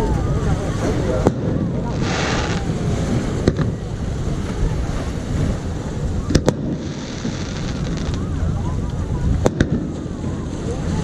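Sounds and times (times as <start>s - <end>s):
steady low rumble: 0.0s - 11.0s
fireworks bangs: 1.2s - 3.9s, 6.3s - 8.2s, 9.4s - 10.2s.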